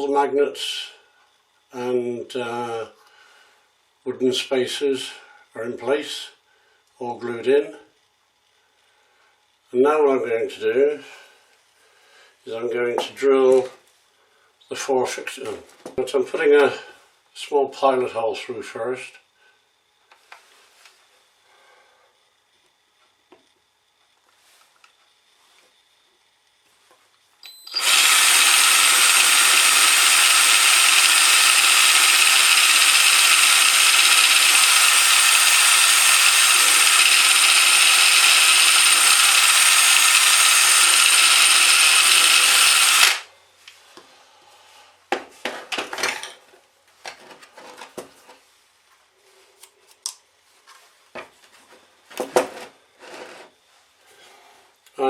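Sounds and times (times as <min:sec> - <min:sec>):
electric drill boring: 0:27.4 - 0:43.3.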